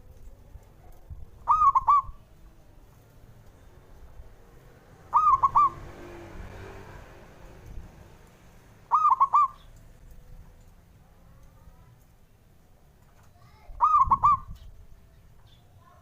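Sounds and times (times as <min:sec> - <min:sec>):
dove cooing song: 0:00.0 - 0:02.8, 0:05.0 - 0:06.2, 0:08.9 - 0:10.6, 0:13.7 - 0:15.6.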